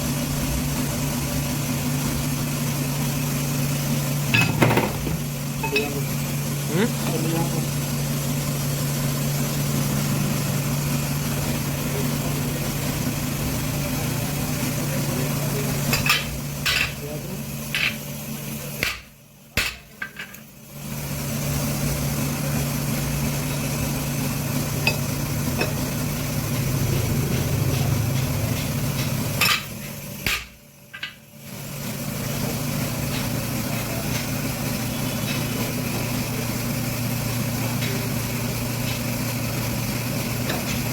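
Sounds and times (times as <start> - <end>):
boring machine motor hum: 21.0 - 30.2.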